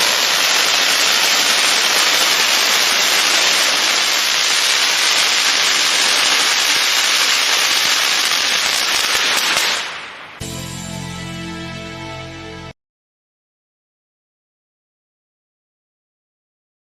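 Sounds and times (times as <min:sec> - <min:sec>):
firework fountain hissing: 0:00.0 - 0:10.5.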